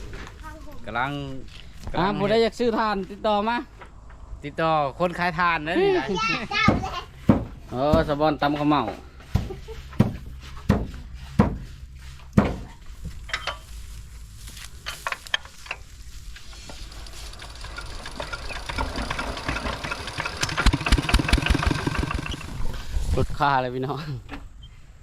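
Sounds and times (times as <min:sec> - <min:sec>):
knocks: 0:06.6 - 0:08.1, 0:09.3 - 0:11.7, 0:12.4 - 0:12.7
small engine chugging: 0:16.4 - 0:23.0.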